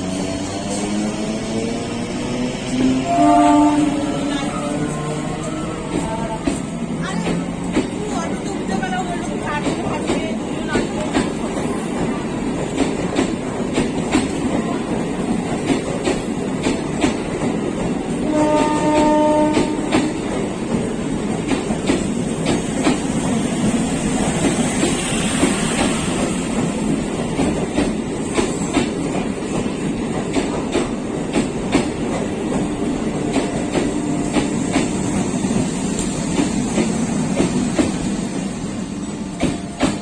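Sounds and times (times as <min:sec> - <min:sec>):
train wheels clacking on rail joints: 0:00.0 - 0:40.0
train horn: 0:02.8 - 0:06.4, 0:18.2 - 0:20.1.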